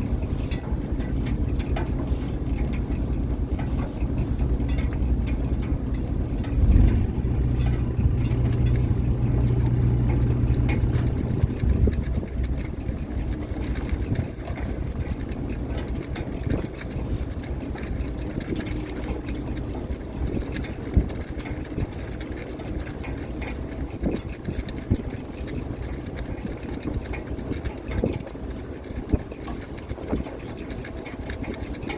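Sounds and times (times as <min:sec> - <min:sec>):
knocks and clatter: 0:00.0 - 0:19.6
boat engine running: 0:00.0 - 0:31.9.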